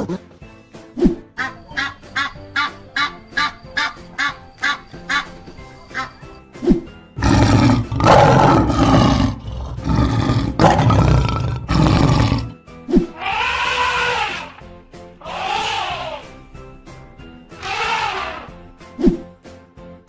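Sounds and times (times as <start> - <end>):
background music: 0.0 - 20.0
lion roaring: 7.2 - 12.6
pitched call rising and falling: 15.2 - 16.3, 17.6 - 18.5.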